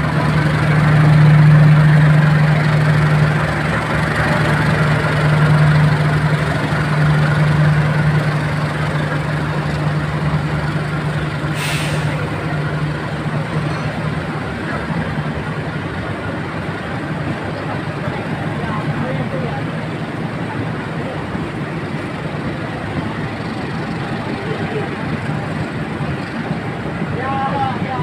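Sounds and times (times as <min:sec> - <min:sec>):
diesel locomotive engine hum: 0:00.0 - 0:28.0
train rumble: 0:00.0 - 0:28.0
brief hiss: 0:11.5 - 0:12.3.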